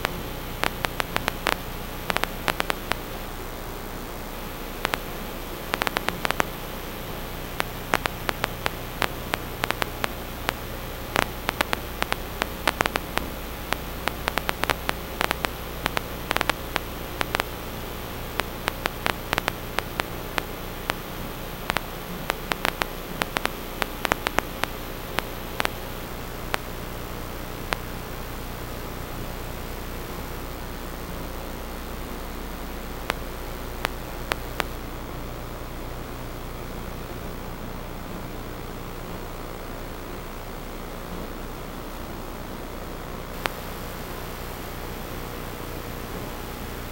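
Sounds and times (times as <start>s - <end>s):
sharp clicks and crackles: 0.0s - 3.2s, 4.7s - 26.8s, 27.7s - 27.9s, 33.0s - 34.8s, 43.3s - 45.0s
static hiss: 0.0s - 46.9s.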